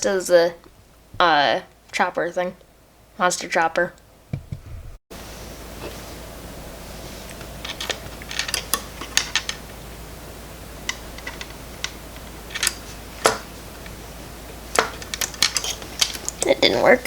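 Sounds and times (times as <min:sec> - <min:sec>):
small parts and tools clicking: 0:07.6 - 0:09.6, 0:10.9 - 0:13.4, 0:14.8 - 0:16.5.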